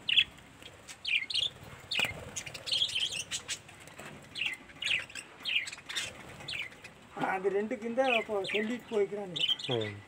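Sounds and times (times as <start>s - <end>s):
budgerigars chirping: 0.0s - 0.3s, 0.9s - 3.7s, 4.3s - 7.0s, 7.9s - 10.0s.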